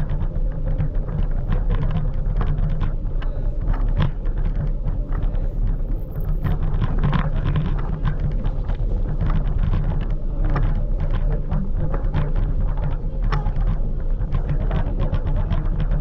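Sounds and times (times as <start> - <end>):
small rattles and knocks: 0.0 - 16.0
wind buffeting microphone: 0.0 - 16.0.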